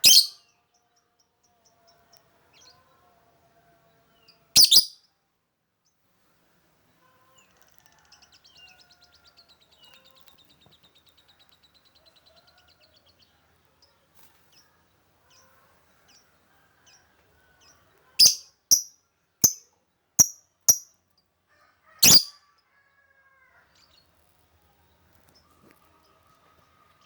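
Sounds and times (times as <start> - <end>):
lovebird chattering trill: 0.0 - 0.4, 4.6 - 4.9, 18.2 - 19.6, 20.2 - 20.8, 22.0 - 22.3
lovebird chirps: 0.0 - 0.4, 4.6 - 5.0, 18.2 - 19.6, 20.2 - 20.9, 22.0 - 22.3
lovebird sharp calls: 0.0 - 0.4, 4.6 - 5.0, 18.2 - 19.6, 20.2 - 20.8, 22.0 - 22.3.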